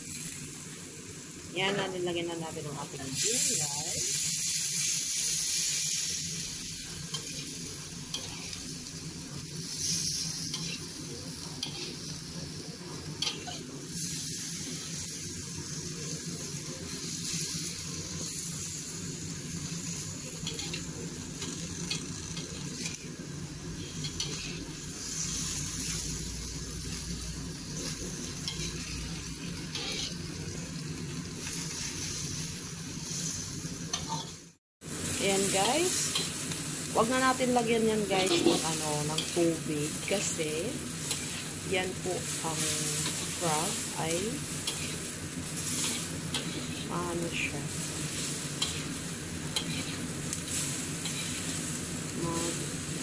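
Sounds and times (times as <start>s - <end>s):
meat sizzling in hot oil: 0.0s - 53.0s
utensil scraping pan: 29.7s - 30.2s, 38.2s - 39.4s, 49.6s - 50.1s.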